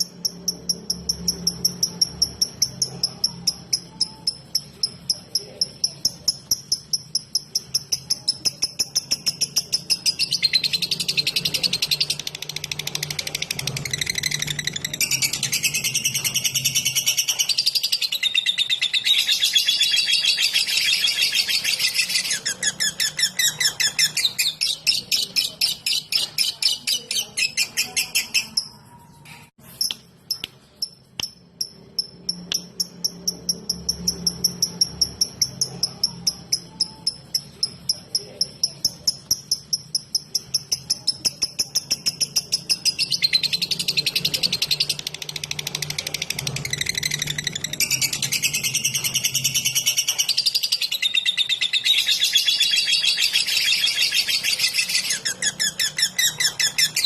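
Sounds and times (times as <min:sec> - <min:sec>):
thin steady high tone: 0:00.0 - 0:22.8.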